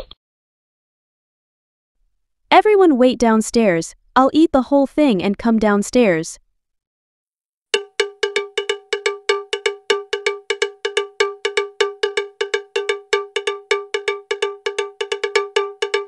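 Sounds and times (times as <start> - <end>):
cowbell-like metallic percussion: 7.8 - 16.0.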